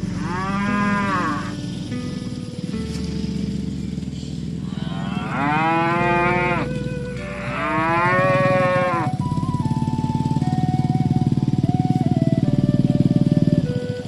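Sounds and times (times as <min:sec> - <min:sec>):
cow mooing: 0:00.0 - 0:01.8, 0:04.6 - 0:09.2
steady low hum: 0:00.0 - 0:14.0.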